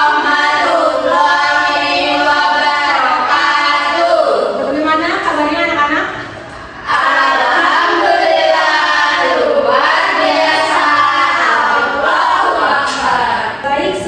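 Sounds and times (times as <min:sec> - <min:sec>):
group singing in unison: 0:00.0 - 0:04.7, 0:06.8 - 0:14.0.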